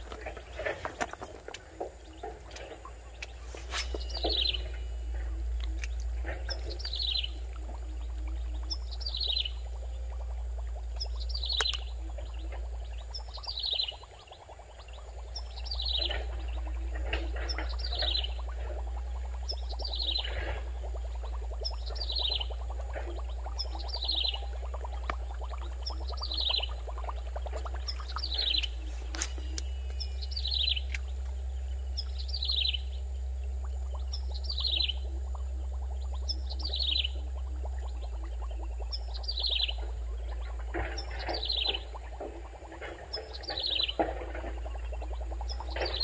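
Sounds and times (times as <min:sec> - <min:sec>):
steady low hum: 0:00.0 - 0:46.0
bird trilling: 0:02.0 - 0:09.7, 0:27.6 - 0:31.2.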